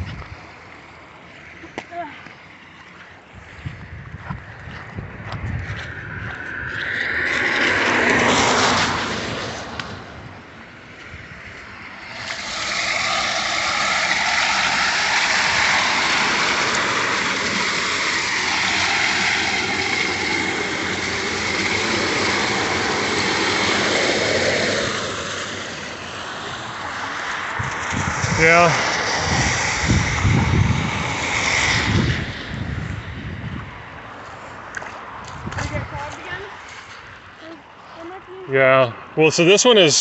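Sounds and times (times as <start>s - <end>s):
tyres hissing through water: 11.8s - 32.4s.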